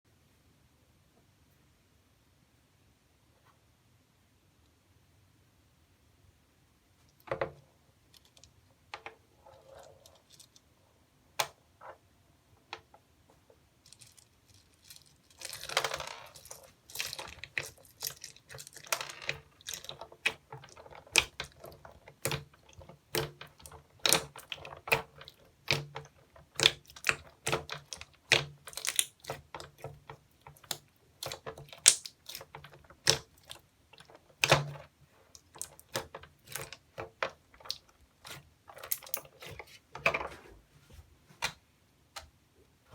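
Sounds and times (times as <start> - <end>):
slime clicking and popping: 30.6 - 33.6.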